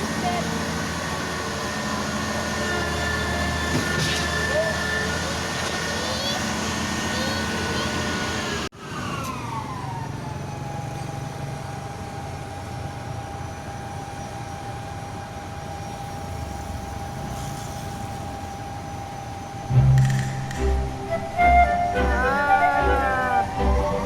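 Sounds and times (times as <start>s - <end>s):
heavy truck whine: 0.0s - 24.0s
low engine hum: 19.6s - 24.0s.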